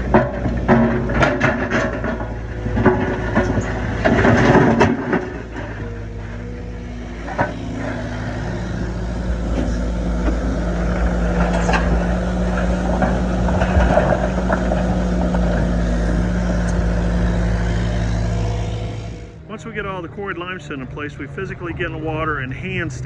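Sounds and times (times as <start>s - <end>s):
engine humming: 0.0s - 23.0s
sharp knocks: 7.4s - 12.4s.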